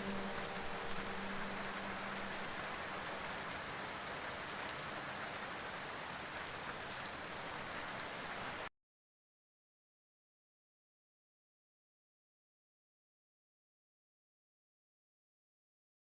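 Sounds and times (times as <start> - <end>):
steady rain falling: 0.0 - 8.7.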